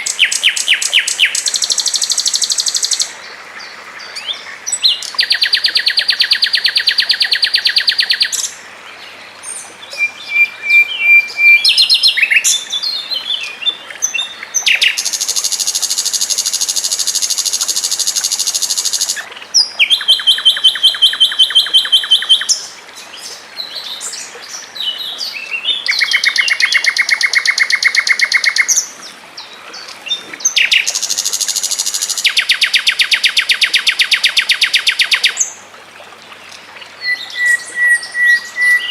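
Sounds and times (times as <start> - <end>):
songbird trilling: 9.9 - 22.7, 25.8 - 28.8, 30.4 - 35.5.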